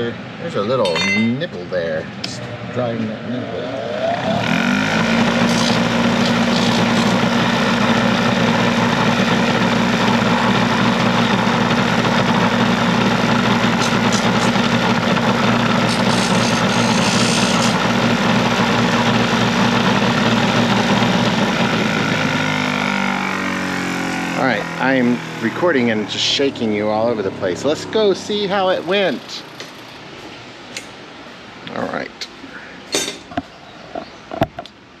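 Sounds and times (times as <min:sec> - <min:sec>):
power tool cutting sheet metal: 0:03.8 - 0:26.0.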